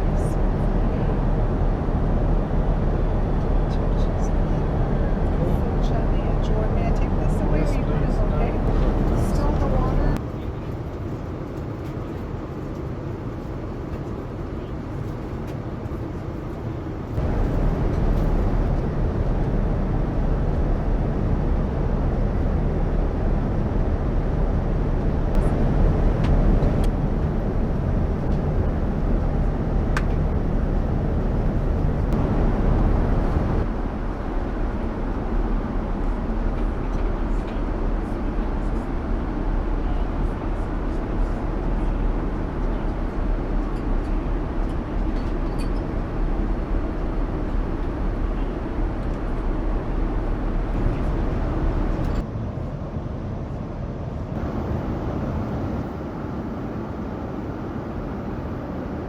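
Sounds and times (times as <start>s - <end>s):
airplane cabin noise: 0.0s - 59.0s.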